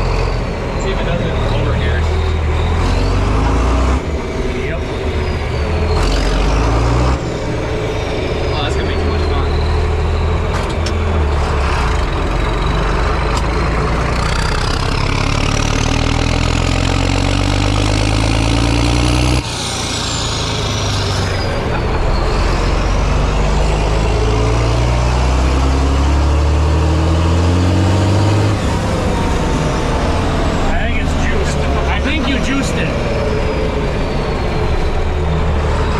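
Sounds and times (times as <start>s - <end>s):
tractor engine revving: 0.0s - 35.9s.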